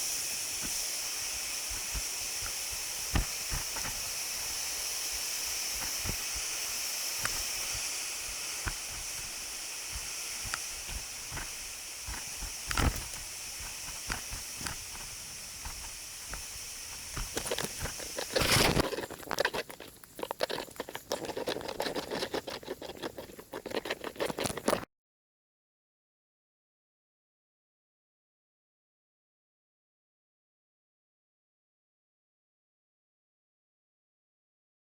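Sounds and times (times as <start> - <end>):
rushing water hiss: 0.0 - 24.9
crackling and crunching: 8.4 - 24.9.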